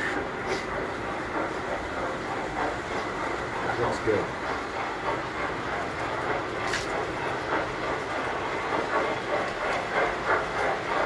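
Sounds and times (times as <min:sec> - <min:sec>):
toy train wheels rattling on track: 0:00.0 - 0:11.0.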